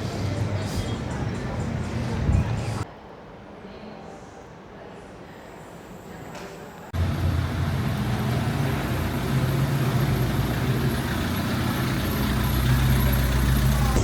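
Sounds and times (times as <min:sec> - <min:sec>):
engine running with deep hum: 0:07.0 - 0:14.0.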